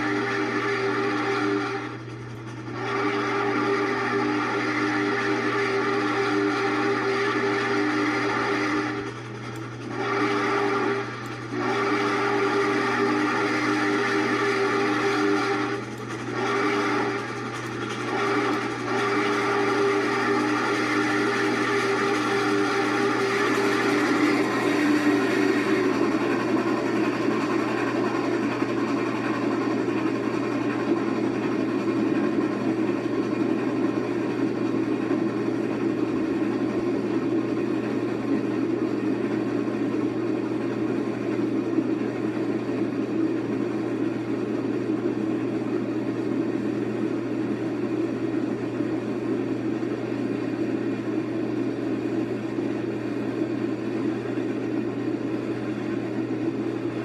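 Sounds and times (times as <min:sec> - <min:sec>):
passenger train rumbling by: 0:00.0 - 0:35.3.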